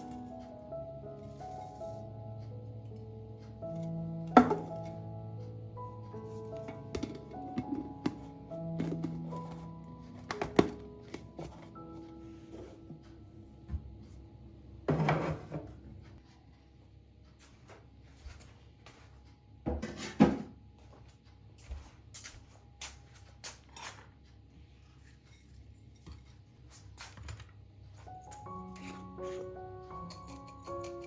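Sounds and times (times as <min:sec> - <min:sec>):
dishes and cutlery clinking: 0:04.3 - 0:05.0, 0:06.3 - 0:08.2, 0:25.0 - 0:31.0.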